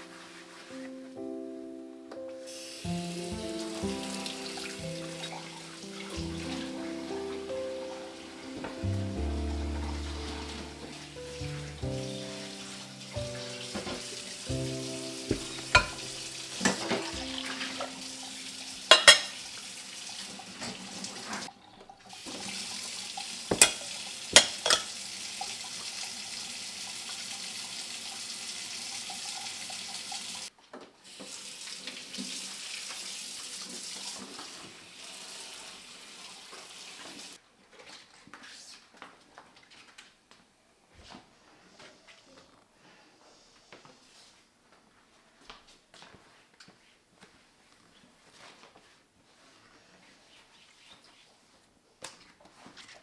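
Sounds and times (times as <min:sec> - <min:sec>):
soft background music: 0:00.0 - 0:19.6
tap water running into sink: 0:02.5 - 0:30.5, 0:31.1 - 0:37.4
dishes clinking: 0:15.3 - 0:18.2, 0:18.8 - 0:19.4, 0:23.5 - 0:25.0.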